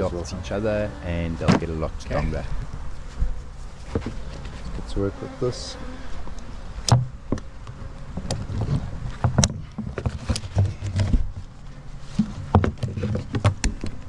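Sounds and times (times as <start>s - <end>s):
wooden boxes knocking and bumping: 12.2s - 13.8s.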